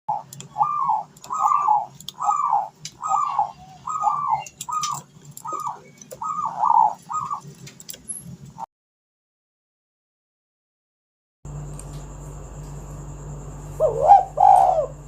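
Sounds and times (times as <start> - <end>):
dove cooing: 0.1 - 7.6, 13.8 - 15.0.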